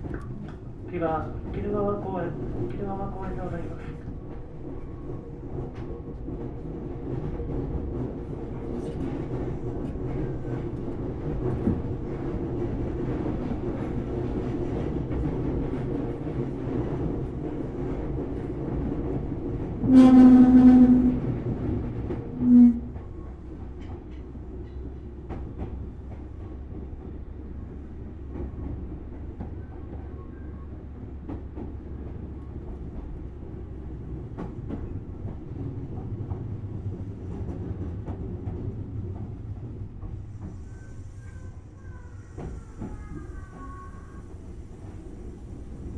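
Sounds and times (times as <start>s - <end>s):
train rail rumble: 0.0s - 45.9s
train horn blasts: 19.8s - 21.5s, 22.3s - 23.0s.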